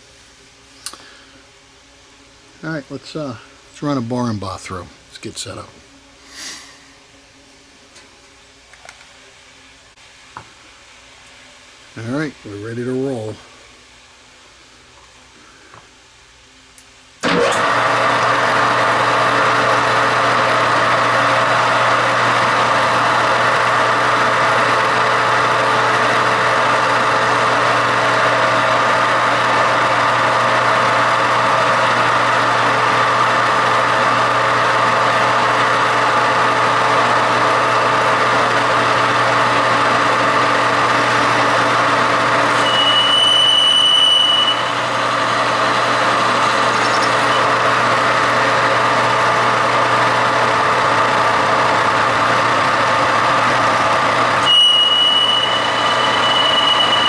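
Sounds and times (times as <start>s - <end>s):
metal lathe running: 17.2s - 57.0s
high thin ringing tone: 42.5s - 47.4s, 54.4s - 57.0s.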